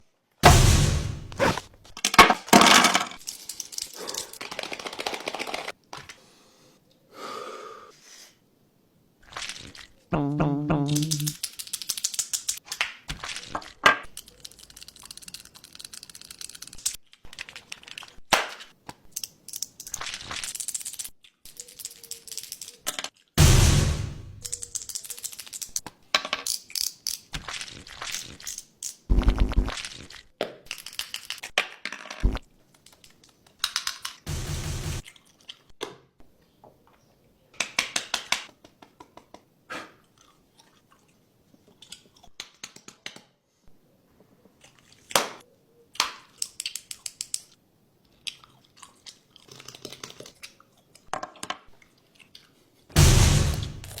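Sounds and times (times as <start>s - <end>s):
scraping or crunching bursts: 0.4s - 2.0s.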